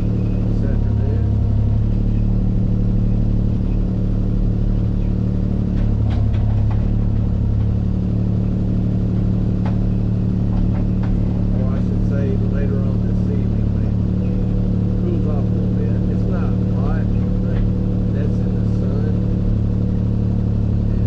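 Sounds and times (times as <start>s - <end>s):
diesel engine running: 0.0s - 21.0s
short knocks: 4.9s - 11.6s.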